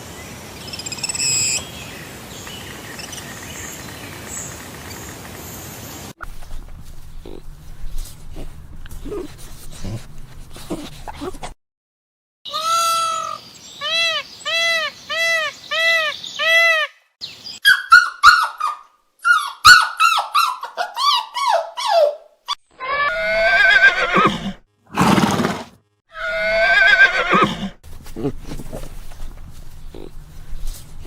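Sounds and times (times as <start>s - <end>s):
horses neighing: 6.2s - 11.5s, 23.0s - 30.3s.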